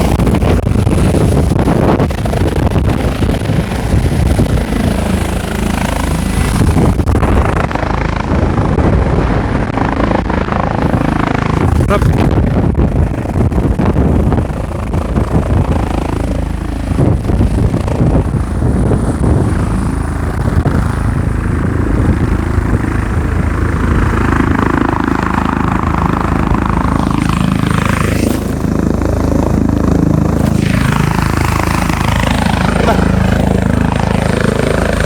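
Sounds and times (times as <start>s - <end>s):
helicopter rotor and engine drone: 0.0s - 35.0s
rushing noise: 30.2s - 35.0s.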